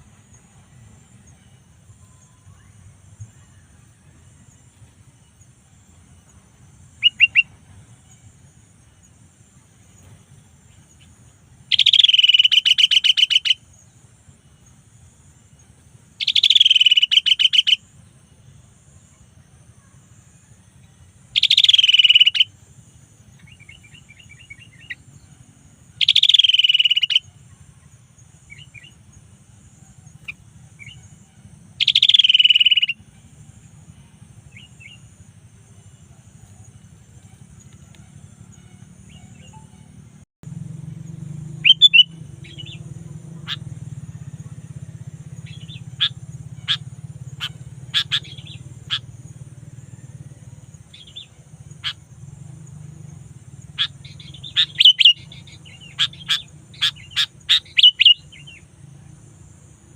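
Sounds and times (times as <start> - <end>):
steady low hum: 0.0 - 59.9
bulbul calling: 6.9 - 8.4, 10.0 - 13.9, 16.1 - 18.0, 21.3 - 29.3, 30.0 - 35.1, 35.9 - 40.0, 41.0 - 59.1.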